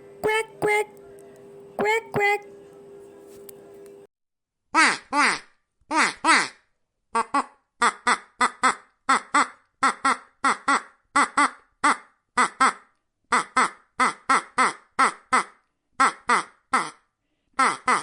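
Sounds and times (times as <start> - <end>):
duck quacking: 0.2 - 0.9, 1.8 - 2.4, 7.2 - 17.0, 17.6 - 18.0.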